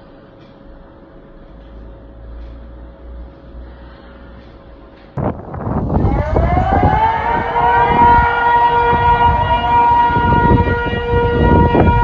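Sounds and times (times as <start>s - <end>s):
low rumbling noise: 0.0s - 12.0s
warning siren wailing: 5.5s - 12.0s.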